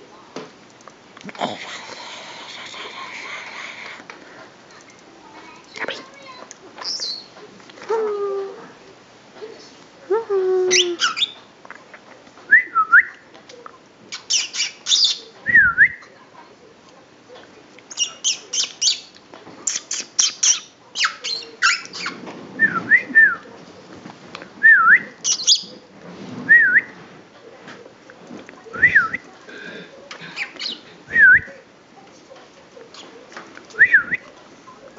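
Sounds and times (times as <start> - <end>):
parrot squawking: 6.8 - 7.3, 10.7 - 11.4, 14.1 - 15.2, 17.9 - 19.1, 19.7 - 22.2, 25.2 - 25.8.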